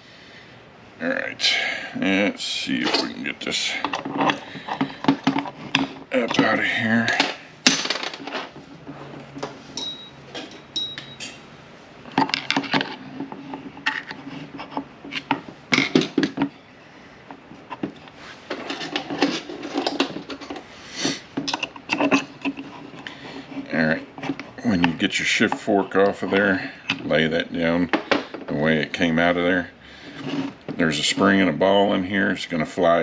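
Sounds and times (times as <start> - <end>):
metal parts clinking and knocking: 3.8 - 8.6, 9.8 - 11.3, 17.8 - 20.6, 21.4 - 22.7.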